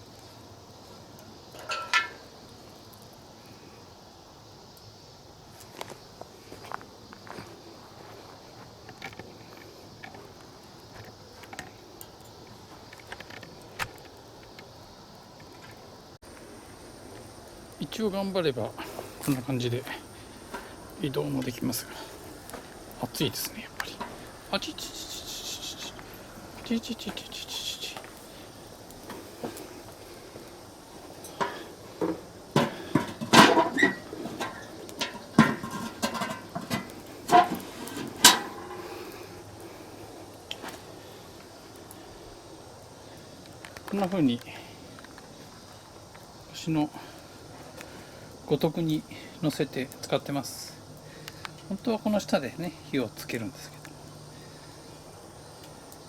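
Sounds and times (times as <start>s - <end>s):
wood fire crackling: 0.0s - 56.0s
metal pot clanking: 1.6s - 2.2s, 31.3s - 38.8s.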